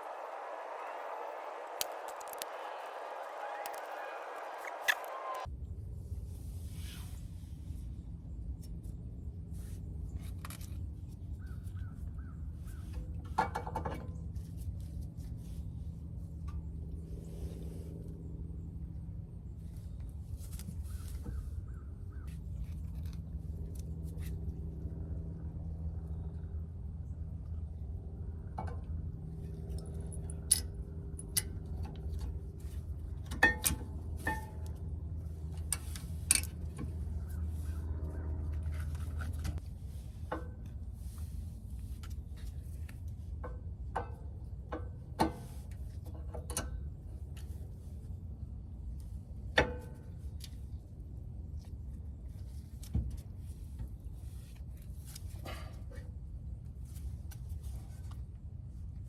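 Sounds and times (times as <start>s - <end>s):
hand tools clinking on car parts: 33.2s - 34.9s.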